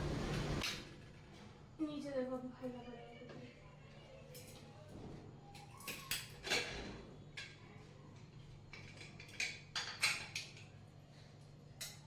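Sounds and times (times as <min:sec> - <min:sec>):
low steady hum: 0:00.0 - 0:00.6.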